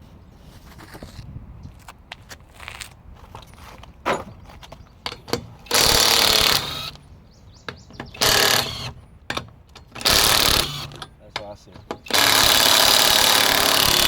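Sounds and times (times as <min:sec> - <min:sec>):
impact wrench hammering: 0:05.1 - 0:07.0, 0:07.7 - 0:14.0.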